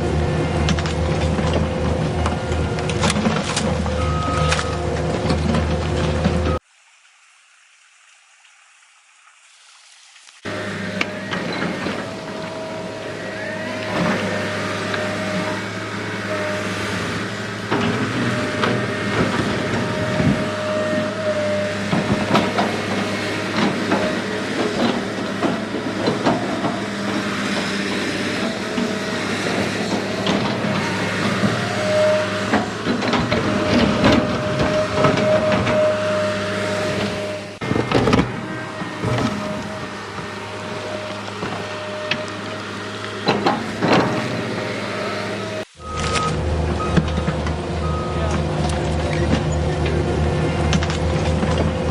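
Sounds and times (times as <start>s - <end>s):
small electric motors whining: 10.5s - 48.3s.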